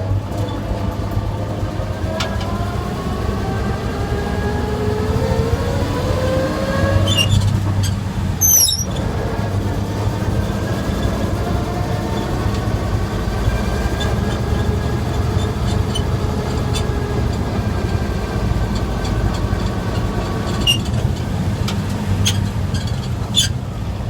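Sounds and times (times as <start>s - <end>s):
truck engine droning: 0.0s - 24.0s
wavering engine whine: 0.0s - 24.0s
sharp clicks and rattles: 7.0s - 23.9s.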